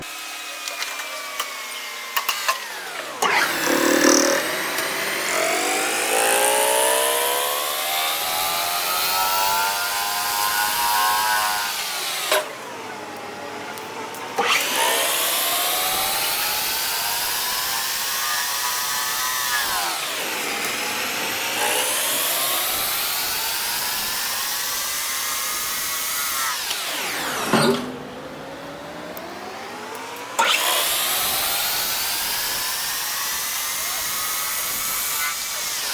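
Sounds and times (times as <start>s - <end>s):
machine tool cutting metal: 3.2s - 8.4s, 25.4s - 30.9s.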